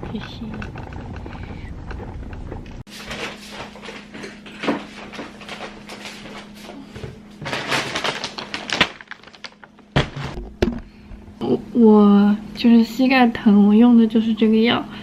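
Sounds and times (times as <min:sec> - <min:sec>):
rustling and handling noises: 0:02.9 - 0:10.9.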